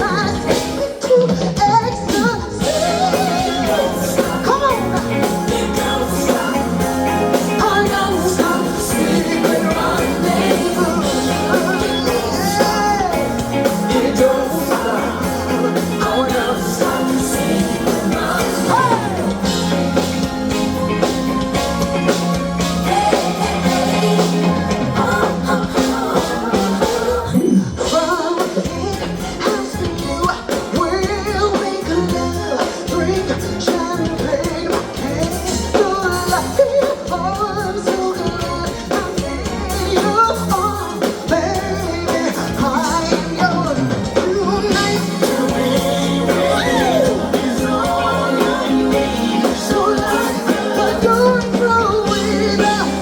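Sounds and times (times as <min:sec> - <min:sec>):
woman singing r and b song: 0:00.0 - 0:20.2, 0:22.6 - 0:28.5
steady beat and bass line: 0:02.3 - 0:28.1, 0:41.6 - 0:53.0.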